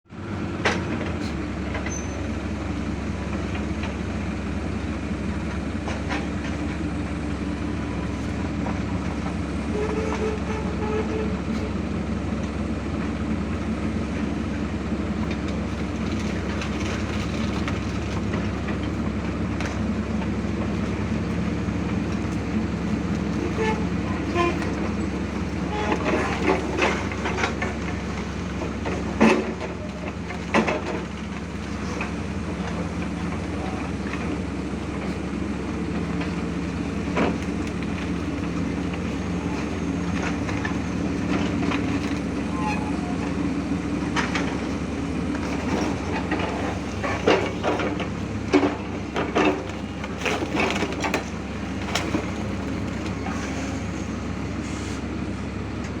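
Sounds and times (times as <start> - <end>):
excavator diesel engine running: 0.1 - 56.0.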